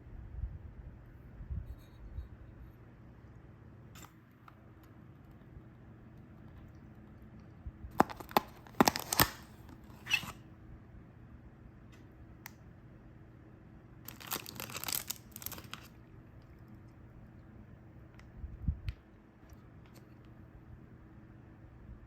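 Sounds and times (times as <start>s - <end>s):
plastic packaging crinkling and tearing: 7.9s - 10.3s, 14.1s - 16.0s.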